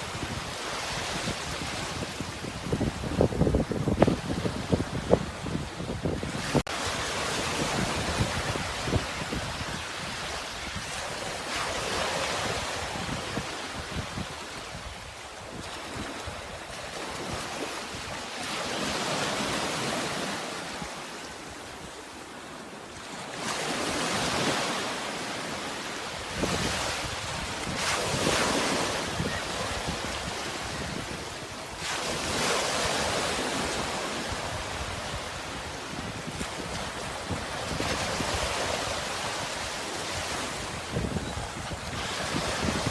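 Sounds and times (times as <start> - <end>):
sea waves washing in: 23.2 - 42.9.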